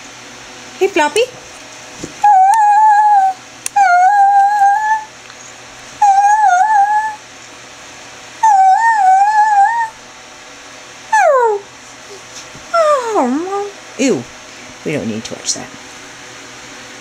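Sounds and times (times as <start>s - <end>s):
dog whine-howling: 2.2s - 7.3s, 8.4s - 10.0s, 11.1s - 11.7s, 12.8s - 13.7s.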